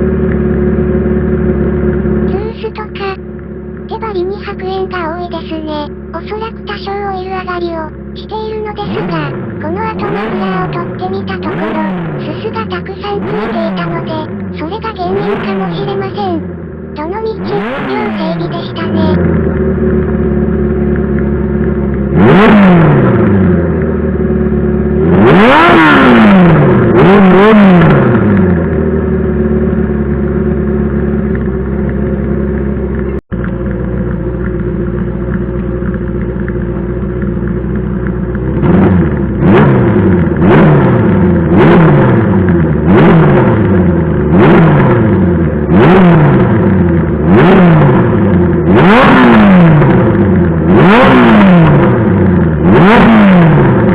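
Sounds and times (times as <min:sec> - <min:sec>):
motorcycle engine idling: 0:00.0 - 0:06.7, 0:07.9 - 0:12.2, 0:15.2 - 0:17.0, 0:19.1 - 0:27.1, 0:27.9 - 0:52.7.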